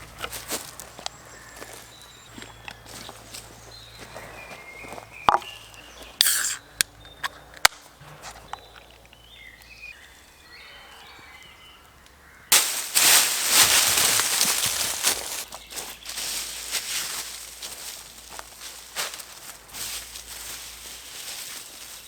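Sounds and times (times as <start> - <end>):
dry leaves rustling and crunching: 0.0 - 6.0, 12.3 - 22.0
small birds chirping: 0.0 - 22.0
dry sticks snapping: 5.2 - 9.9, 11.8 - 22.0.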